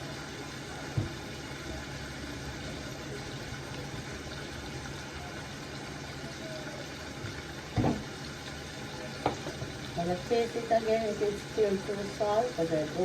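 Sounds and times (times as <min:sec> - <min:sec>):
pot cooking in oil hissing: 0:00.0 - 0:13.0.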